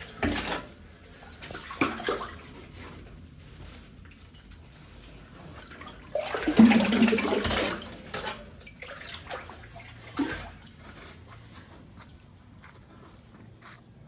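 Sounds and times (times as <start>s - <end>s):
water dripping: 4.0s - 11.0s
water splashing: 5.5s - 11.0s.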